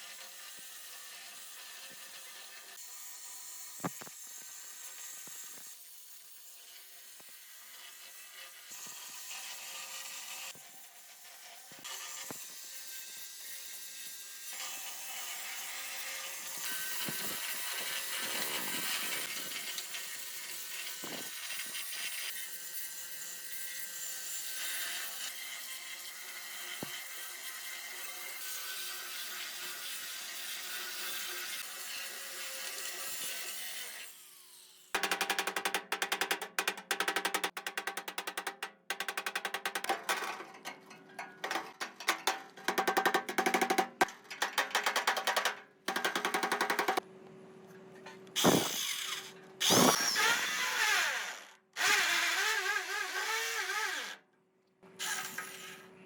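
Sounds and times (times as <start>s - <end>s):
power tool grinding metal: 48.4s - 54.2s.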